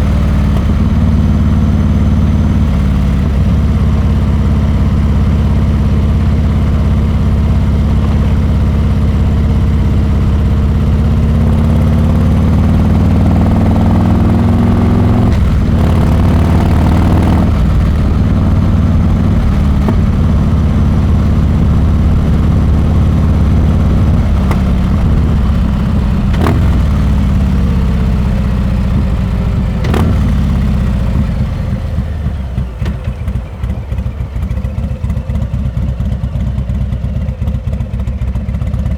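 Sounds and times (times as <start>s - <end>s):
motorcycle engine revving: 0.0s - 38.9s
motorcycle gear changes: 13.5s - 30.5s.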